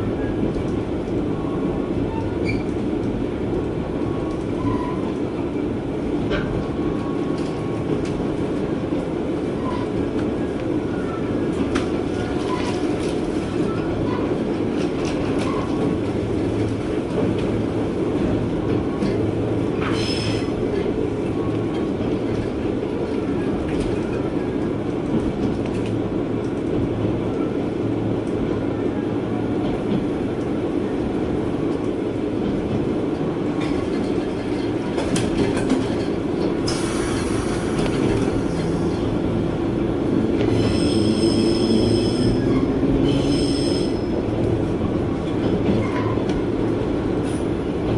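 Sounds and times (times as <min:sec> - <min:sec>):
train engine and wheels rumbling: 0:00.0 - 0:47.9
high-pitched wheel squeal: 0:40.6 - 0:44.1.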